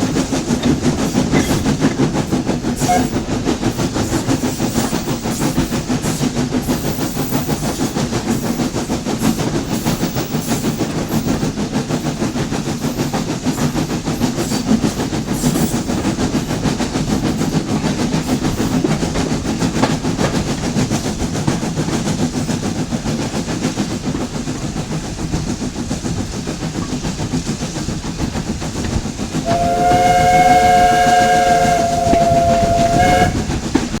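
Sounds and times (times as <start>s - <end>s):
steam train rumbling and rattling: 0.0s - 34.0s
steam train whistle blast: 2.8s - 3.2s, 29.4s - 33.7s.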